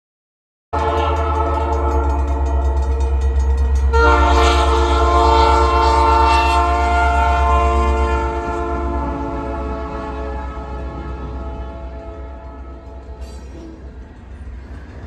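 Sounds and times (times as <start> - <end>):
train horn chord: 0.8 - 13.8.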